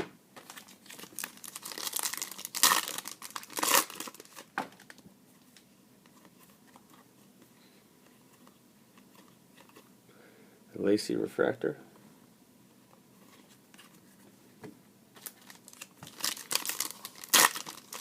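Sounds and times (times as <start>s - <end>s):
foil wrapper rustling: 0.4s - 5.0s, 15.2s - 18.0s
foil wrapper ripping: 0.6s - 4.4s, 15.4s - 18.0s.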